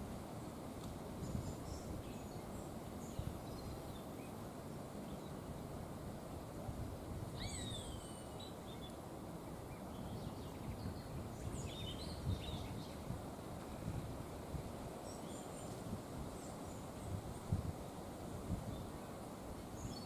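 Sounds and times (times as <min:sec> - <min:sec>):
wind through trees: 0:00.0 - 0:20.0
bird calls: 0:07.4 - 0:09.0.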